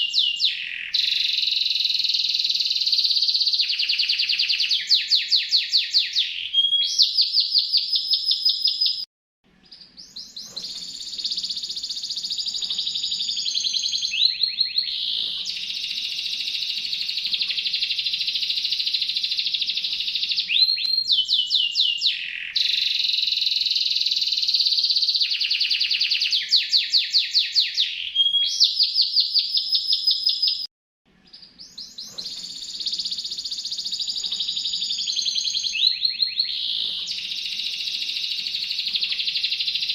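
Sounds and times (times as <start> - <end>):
songbird trilling: 9.7 - 30.6.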